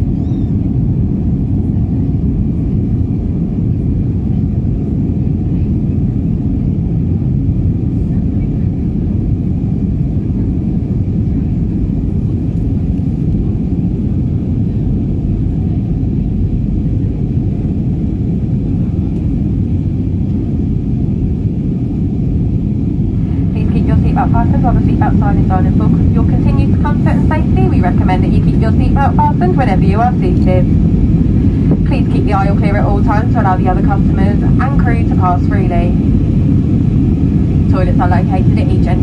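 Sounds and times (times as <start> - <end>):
airplane cabin roar: 0.0 - 39.0
faint steady whine: 22.0 - 39.0.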